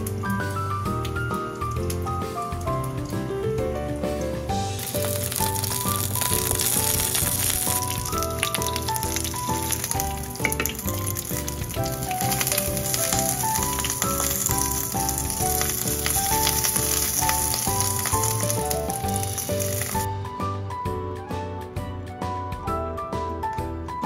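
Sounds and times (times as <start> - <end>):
light background music: 0.0 - 24.0
onion sizzling in oil: 4.5 - 20.1.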